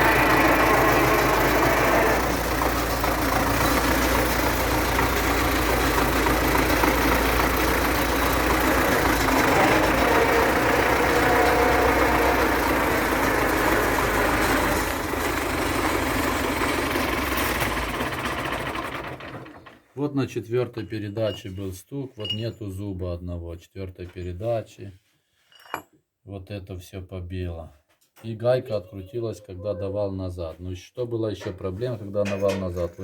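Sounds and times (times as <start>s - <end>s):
tractor diesel engine running: 0.0s - 19.8s.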